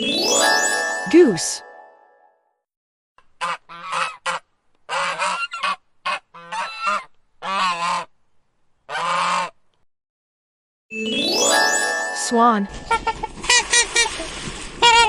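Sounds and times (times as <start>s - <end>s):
goose honking: 3.4s - 8.1s, 8.9s - 9.6s.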